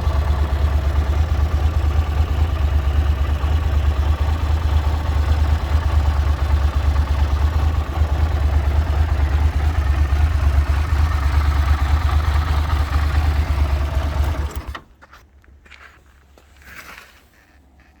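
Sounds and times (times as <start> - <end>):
motorcycle engine idling: 0.0 - 14.9
short scrape: 16.6 - 17.6.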